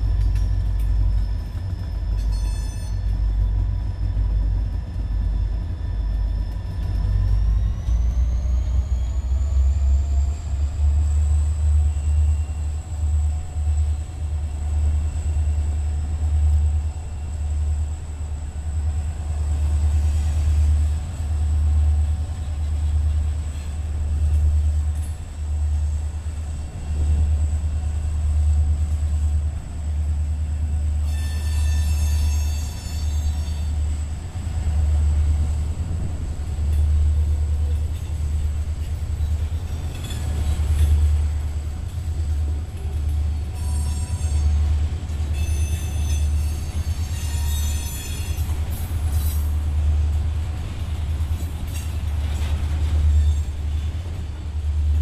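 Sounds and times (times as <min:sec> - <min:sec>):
train wheels rumbling on rail: 0:00.0 - 0:55.0
high-pitched wheel squeals: 0:00.4 - 0:04.5, 0:31.0 - 0:33.8, 0:43.6 - 0:44.6, 0:45.3 - 0:48.5.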